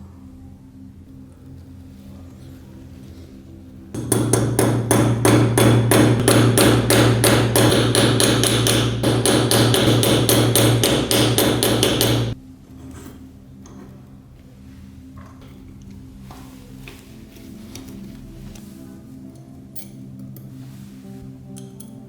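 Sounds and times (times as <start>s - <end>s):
hammer striking metal: 4.0s - 12.4s.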